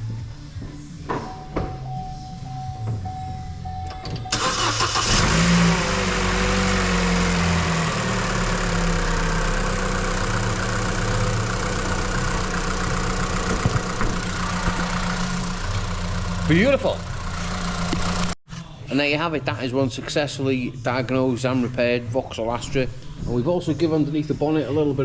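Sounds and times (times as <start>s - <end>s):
car engine cranking and idling: 1.8s - 18.4s.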